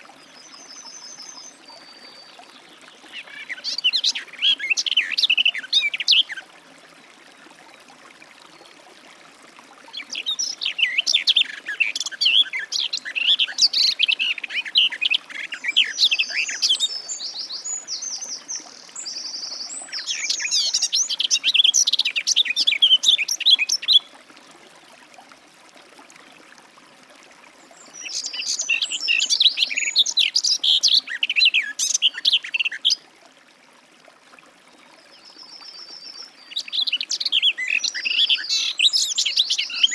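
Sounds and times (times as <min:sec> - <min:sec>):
bird warbling song: 0:09.9 - 0:24.1, 0:27.8 - 0:33.0, 0:35.1 - 0:39.9.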